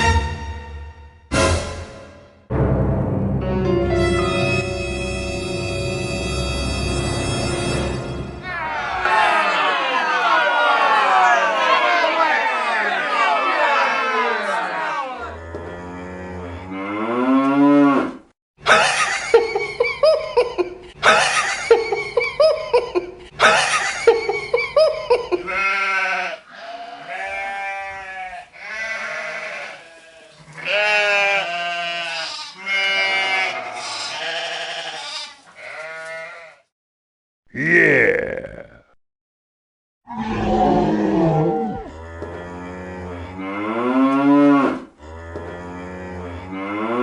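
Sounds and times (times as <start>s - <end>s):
farm animals bleating: 15.2s - 18.1s, 25.4s - 36.7s, 41.2s - 47.0s.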